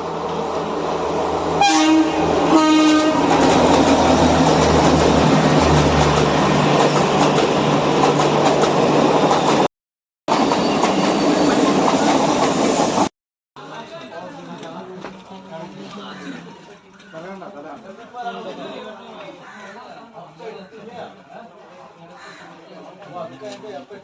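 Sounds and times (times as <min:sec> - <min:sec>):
train rumbling past: 0:00.0 - 0:09.7, 0:10.3 - 0:13.1
train horn blasts: 0:01.6 - 0:03.3.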